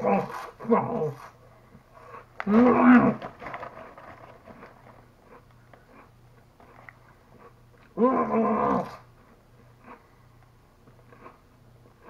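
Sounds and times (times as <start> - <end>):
chip bag crackling: 2.5 - 5.1.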